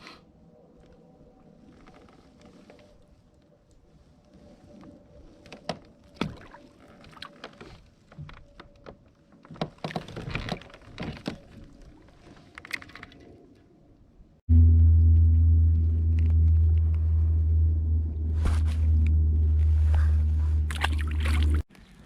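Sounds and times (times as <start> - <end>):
loud low rumble: 14.5 - 21.6
water sloshing: 18.5 - 21.9.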